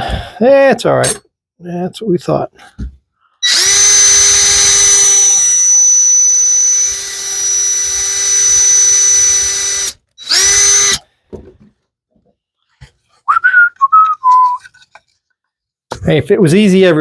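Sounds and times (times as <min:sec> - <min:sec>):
electric drill boring wood: 0:03.4 - 0:11.0.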